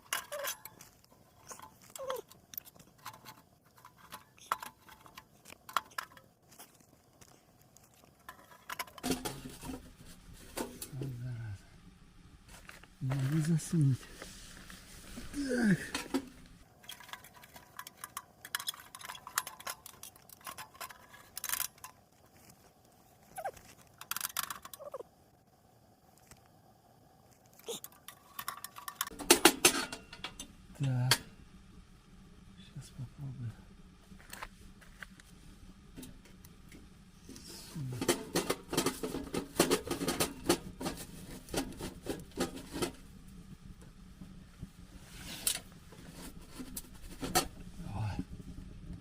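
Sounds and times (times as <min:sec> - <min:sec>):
clicking and rattling in stove: 0:00.0 - 0:06.4, 0:08.2 - 0:10.9, 0:15.9 - 0:22.2, 0:23.9 - 0:24.8, 0:27.8 - 0:31.3, 0:38.0 - 0:44.4, 0:45.4 - 0:47.7.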